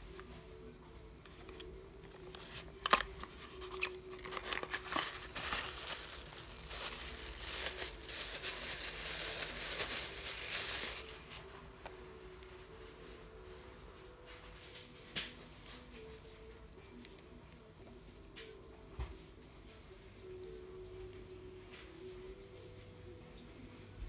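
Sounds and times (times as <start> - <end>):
packaging crinkling and rustling: 1.3 - 11.6.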